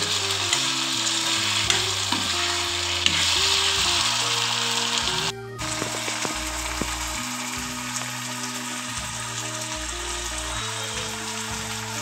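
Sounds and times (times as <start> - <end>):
potato slices sizzling in oil: 0.0 - 12.0.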